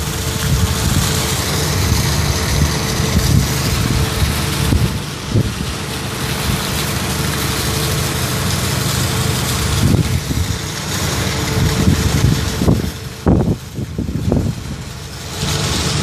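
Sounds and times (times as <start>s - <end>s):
wind buffeting thumps: 0.0s - 6.9s, 9.6s - 15.0s
engine hum: 0.0s - 16.0s
wind hiss on microphone: 0.0s - 16.0s.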